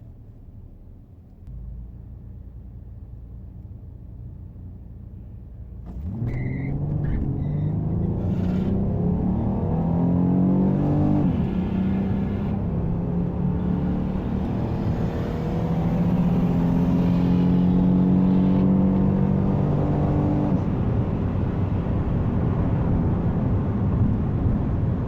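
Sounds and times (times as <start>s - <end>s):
car engine accelerating hard: 5.8s - 25.0s.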